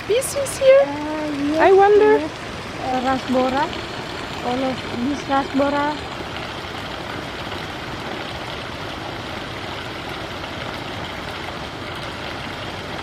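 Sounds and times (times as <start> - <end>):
stream water running: 0.0 - 13.0.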